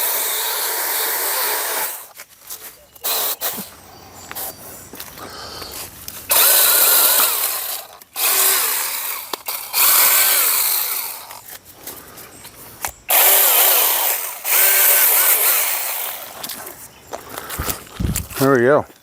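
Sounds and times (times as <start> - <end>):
electric chainsaw whining: 0.0 - 2.1, 6.3 - 11.6, 13.1 - 16.4.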